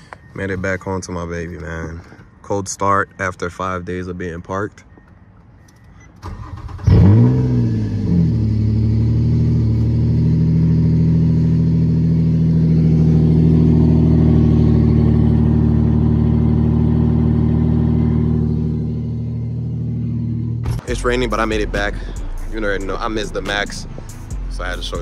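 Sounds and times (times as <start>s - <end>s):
car engine starting and idling: 4.9s - 25.0s.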